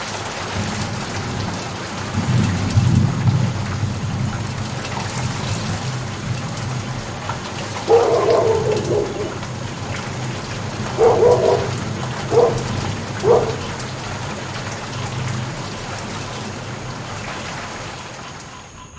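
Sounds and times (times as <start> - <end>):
rain falling: 0.0 - 18.9
short pitched calls: 7.6 - 14.6.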